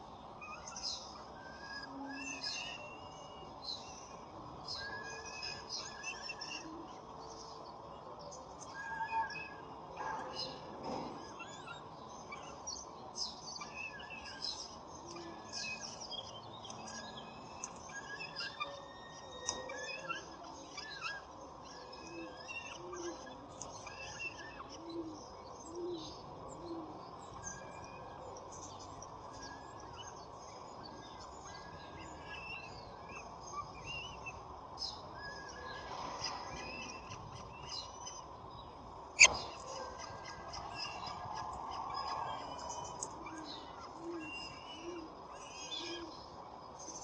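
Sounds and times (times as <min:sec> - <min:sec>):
small birds chirping: 0:00.0 - 0:47.0
low bird call: 0:39.2 - 0:46.2.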